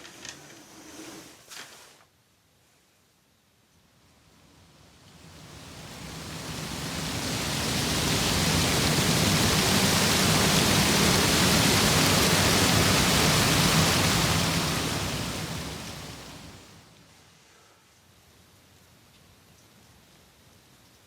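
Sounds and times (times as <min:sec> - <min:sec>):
blizzard wind rushing: 0:05.2 - 0:16.8.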